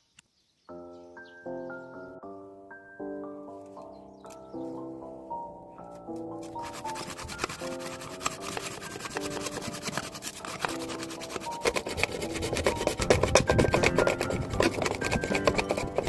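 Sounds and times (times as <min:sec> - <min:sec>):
background music sustained notes: 0:00.6 - 0:16.0
rasping strokes on wood: 0:06.4 - 0:16.0.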